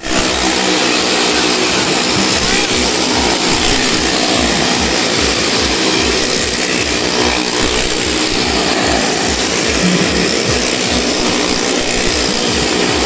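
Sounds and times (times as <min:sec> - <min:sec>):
motorcycle engine revving high: 0:00.0 - 0:13.0.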